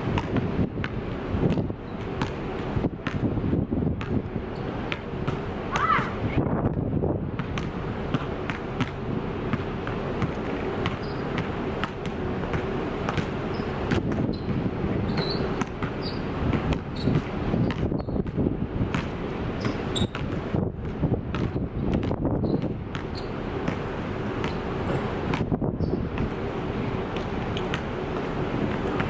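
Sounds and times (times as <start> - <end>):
basketball bouncing on hard court: 0.2 - 2.4, 3.0 - 3.3, 4.0 - 4.2, 7.4 - 23.8, 24.4 - 26.4
short high squeaks: 11.0 - 11.3, 13.5 - 14.5, 15.1 - 16.3, 16.9 - 17.1, 19.6 - 20.2, 22.4 - 23.4.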